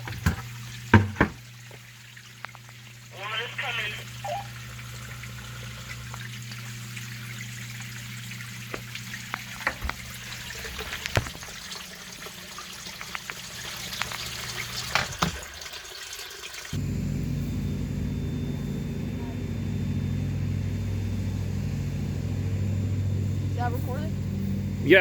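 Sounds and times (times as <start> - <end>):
water trickling and splashing: 0.0 - 16.8
small drips and clicks: 0.2 - 3.1, 4.1 - 15.4
steady low hum: 16.8 - 25.0.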